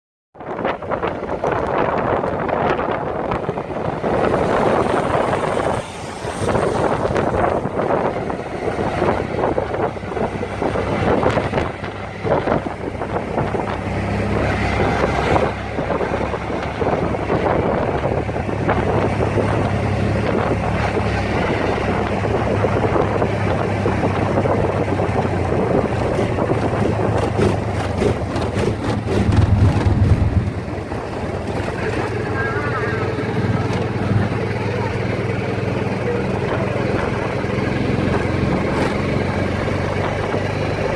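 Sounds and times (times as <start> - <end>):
low engine hum: 0.4 - 40.9
wind rushing on microphone: 0.4 - 40.9.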